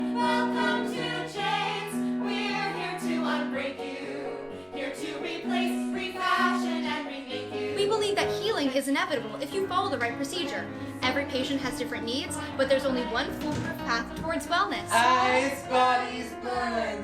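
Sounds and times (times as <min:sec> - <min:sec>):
voices singing together: 0:00.0 - 0:09.6, 0:14.3 - 0:17.0.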